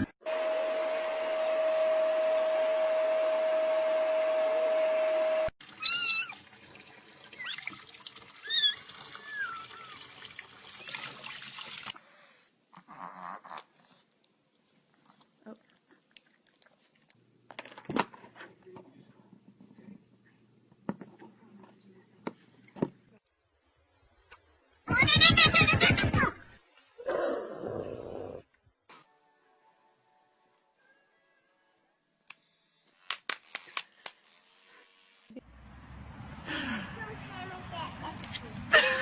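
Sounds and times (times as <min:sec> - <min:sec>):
cat chirping meows: 0:05.8 - 0:06.4.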